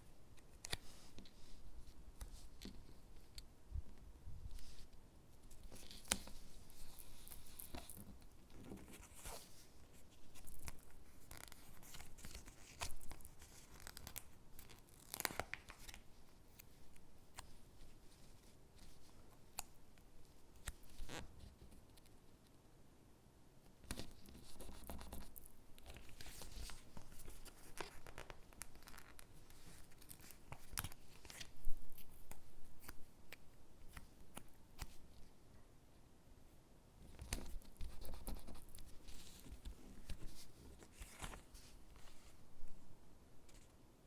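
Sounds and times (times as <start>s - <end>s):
stickers being peeled: 10.3s - 16.7s
paper rustling: 37.2s - 42.4s.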